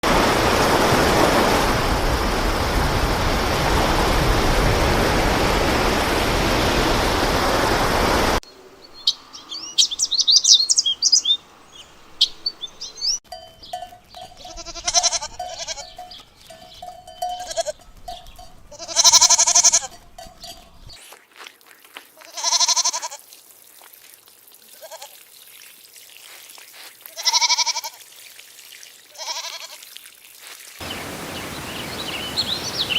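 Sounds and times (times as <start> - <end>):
birds chirping and whistling: 8.8 - 14.2, 17.8 - 18.6, 30.8 - 32.9
goat bleating: 14.3 - 16.1, 17.2 - 18.1, 18.7 - 20.3, 22.2 - 23.2, 24.7 - 25.2, 27.2 - 28.0, 29.1 - 29.8.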